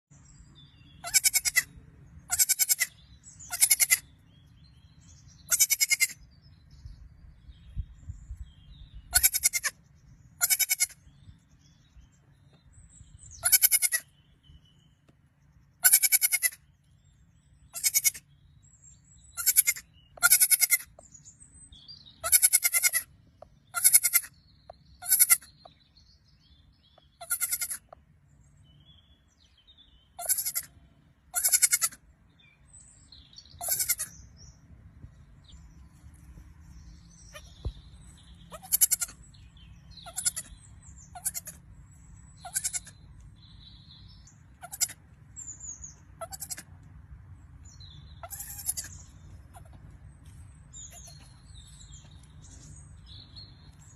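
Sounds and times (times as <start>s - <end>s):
goat kid bleating: 1.0s - 4.2s, 5.4s - 6.3s, 9.1s - 9.8s, 10.4s - 11.1s, 13.3s - 14.1s, 15.8s - 16.7s, 17.7s - 18.3s, 19.4s - 21.0s, 22.2s - 24.4s, 25.0s - 25.5s, 27.0s - 28.0s, 30.2s - 32.0s, 33.5s - 34.2s, 37.2s - 37.7s, 38.5s - 39.3s, 40.0s - 41.6s, 42.4s - 43.0s, 44.5s - 45.2s, 46.2s - 46.8s, 48.2s - 49.9s, 50.8s - 51.4s.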